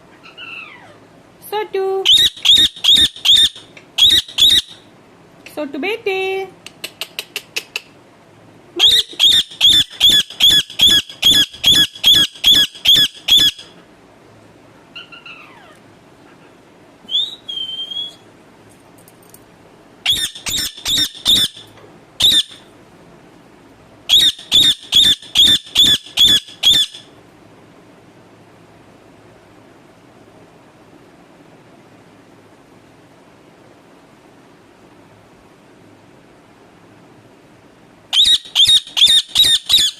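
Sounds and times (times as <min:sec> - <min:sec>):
parakeet screeching: 0:00.2 - 0:01.0, 0:02.1 - 0:04.8, 0:08.8 - 0:13.7, 0:14.9 - 0:15.8, 0:20.0 - 0:22.6, 0:24.1 - 0:27.1, 0:38.1 - 0:39.9.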